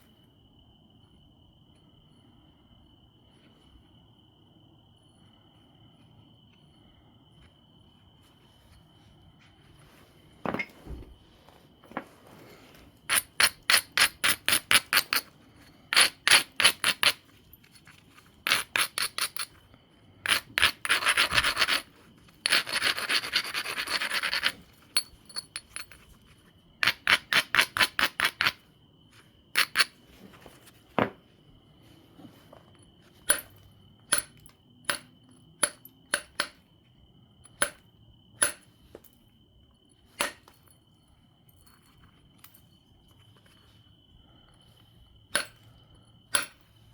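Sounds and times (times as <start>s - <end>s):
stone clicking on stone: 13.1s - 15.3s, 15.9s - 17.2s, 18.5s - 19.6s, 20.3s - 26.0s, 29.6s - 30.0s, 46.3s - 46.6s
stone scraping stone edge: 15.9s - 17.2s, 18.5s - 19.5s, 20.2s - 24.6s.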